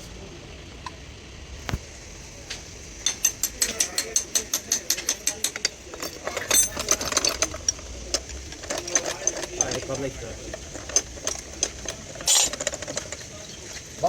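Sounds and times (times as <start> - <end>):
ratchet wrench clicking: 3.0 - 13.3.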